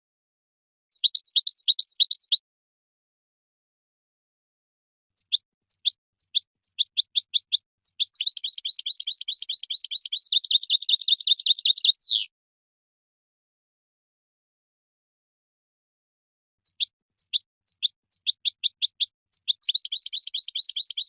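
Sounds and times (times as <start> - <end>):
bird singing high trill: 0.9 - 2.4, 5.2 - 12.3, 16.6 - 21.0.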